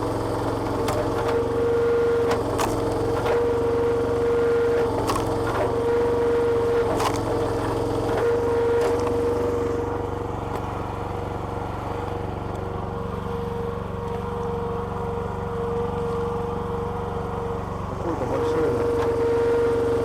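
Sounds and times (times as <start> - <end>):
log splitter engine whining: 0.0 - 20.0
wood splitting cracks: 0.3 - 6.1, 6.7 - 9.3.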